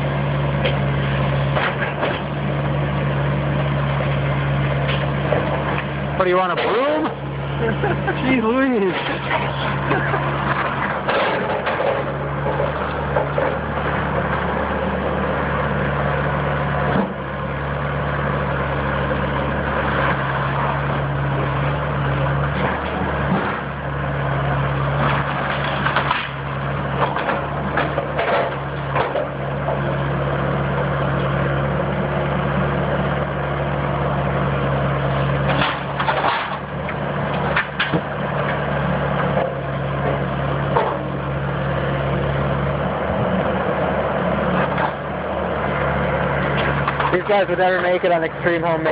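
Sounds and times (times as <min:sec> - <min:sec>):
diesel demolition machine engine: 0:00.0 - 0:48.9
wood framing cracking and crunching: 0:04.8 - 0:15.2, 0:22.3 - 0:30.4, 0:34.6 - 0:41.7.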